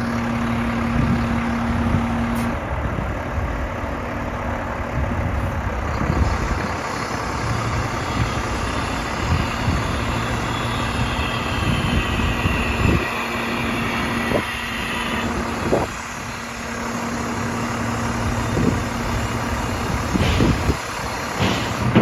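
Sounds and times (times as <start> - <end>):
diesel engine humming: 0.0 - 22.0
metallic clunks: 21.4 - 22.0.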